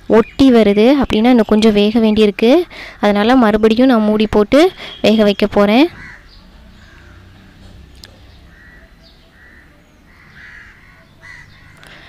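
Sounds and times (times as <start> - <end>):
harsh bird calls: 4.0 - 12.0.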